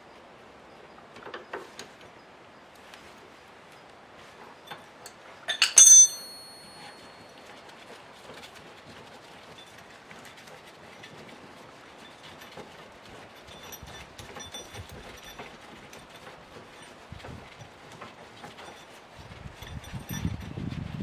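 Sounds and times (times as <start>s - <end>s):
metal-on-metal clinks: 4.7s - 7.5s, 12.0s - 20.7s
handling noise: 5.5s - 7.3s.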